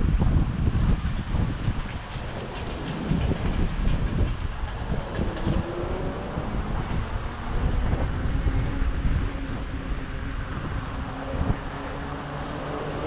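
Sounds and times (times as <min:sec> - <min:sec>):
rumble of road and traffic: 0:00.0 - 0:13.0
wind buffeting microphone: 0:00.0 - 0:13.0.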